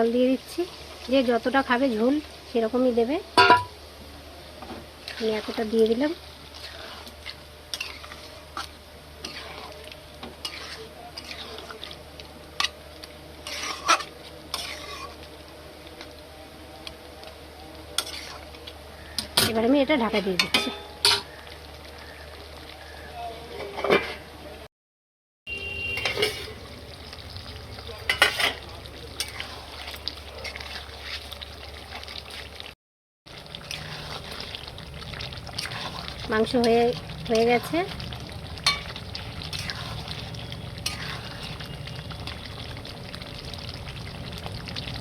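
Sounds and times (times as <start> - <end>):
curry sizzling: 0.0 - 24.4, 25.5 - 45.0
spoon scraping pot: 6.6 - 9.8, 10.4 - 12.0, 13.4 - 15.2, 18.0 - 18.4, 26.0 - 26.6, 28.1 - 31.4, 33.6 - 37.8, 38.6 - 41.7.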